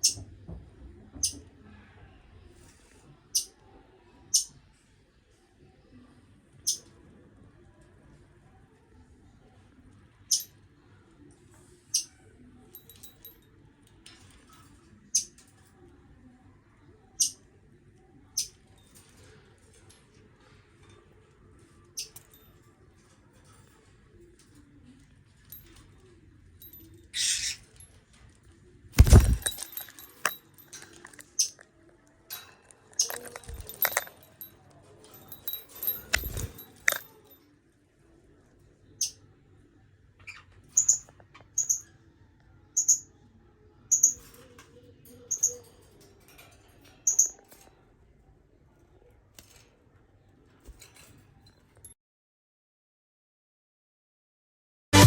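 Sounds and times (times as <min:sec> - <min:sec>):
cage and swing clinking: 0:10.3 - 0:10.6, 0:12.0 - 0:15.6, 0:18.4 - 0:24.8, 0:25.4 - 0:28.3, 0:29.0 - 0:37.4, 0:43.9 - 0:48.3, 0:50.5 - 0:51.9
light tinkling: 0:12.7 - 0:13.5, 0:29.0 - 0:31.6, 0:32.3 - 0:37.4.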